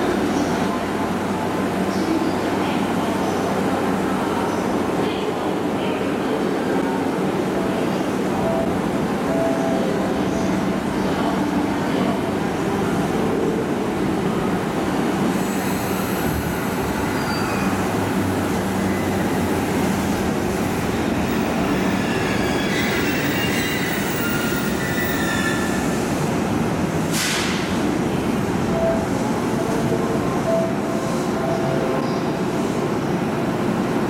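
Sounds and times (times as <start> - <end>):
electric train braking to a stop: 15.3 - 19.6, 21.2 - 26.0
wheels and brakes squealing: 17.0 - 18.0, 21.4 - 26.0.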